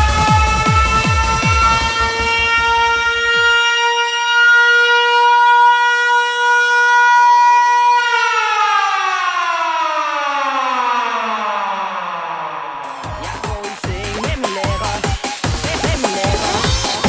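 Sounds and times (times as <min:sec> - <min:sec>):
trance kick drum: 0:00.0 - 0:03.5, 0:12.9 - 0:17.0
siren-like synth tone: 0:00.0 - 0:13.2.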